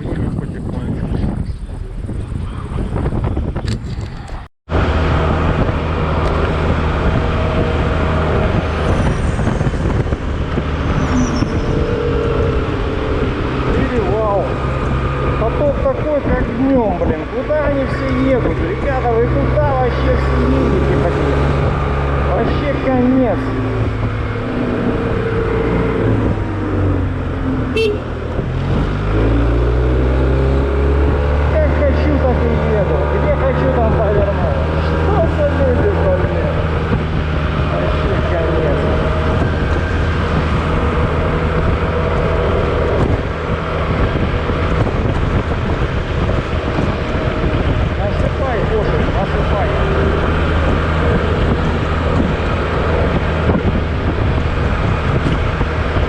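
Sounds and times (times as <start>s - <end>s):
wind and road noise: 0.0s - 56.0s
scooter engine: 11.5s - 28.6s
short high horn toot: 27.7s - 28.2s.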